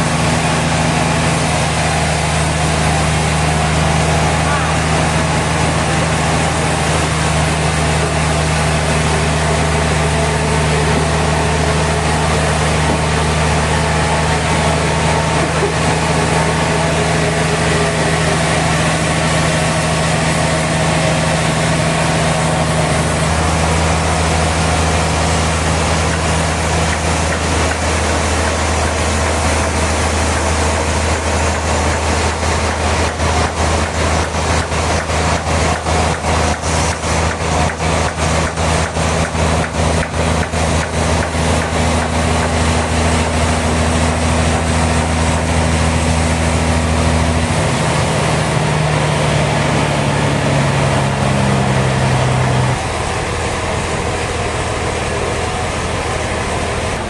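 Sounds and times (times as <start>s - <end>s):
sawmill machinery humming: 0.0s - 57.0s
fast regular pulsing: 52.4s - 57.0s.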